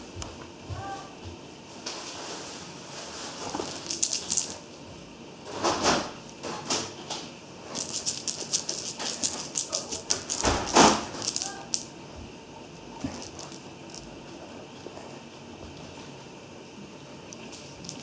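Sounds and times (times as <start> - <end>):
kitten scratchy clicks and rustles: 3.0 - 4.6, 6.7 - 11.9, 13.0 - 14.4, 17.3 - 18.0.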